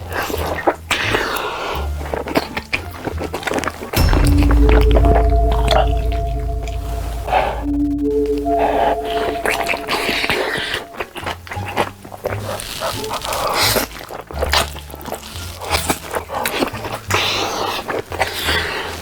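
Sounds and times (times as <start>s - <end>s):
background music with bass line: 4.0s - 11.0s.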